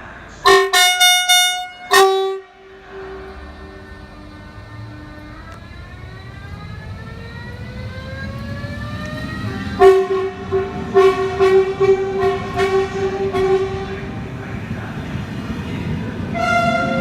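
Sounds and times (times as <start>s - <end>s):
train horn blast: 0.4s - 5.8s, 9.6s - 14.3s, 16.3s - 17.0s
electric train motor whine: 1.2s - 17.0s.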